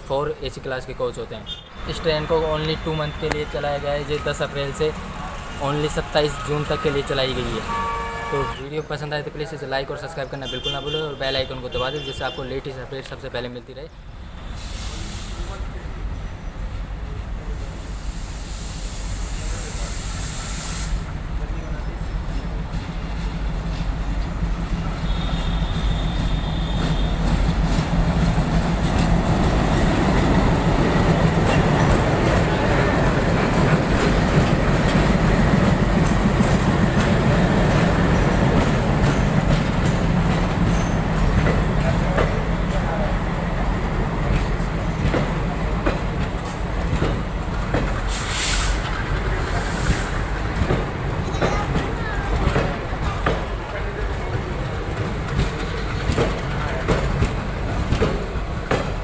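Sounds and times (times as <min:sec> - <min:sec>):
train rumbling on rails: 0:00.0 - 0:59.0
high hiss: 0:17.7 - 0:21.2, 0:48.1 - 0:50.3.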